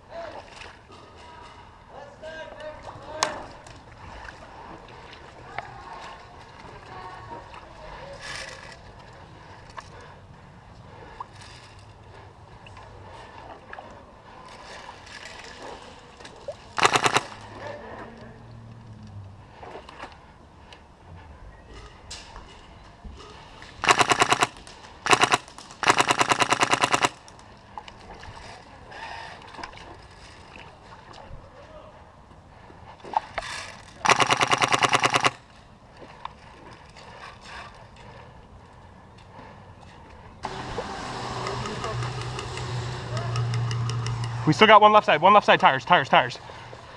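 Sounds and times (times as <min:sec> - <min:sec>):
rapid airsoft gun shots: 0:16.8 - 0:17.4, 0:23.8 - 0:27.3, 0:34.0 - 0:35.4.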